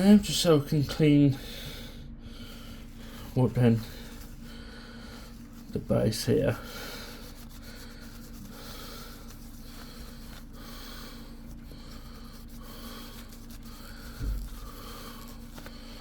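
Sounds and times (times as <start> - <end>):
steady low hum: 0.0 - 16.0
tissue wiping strokes: 1.4 - 16.0
thump: 14.2 - 14.6.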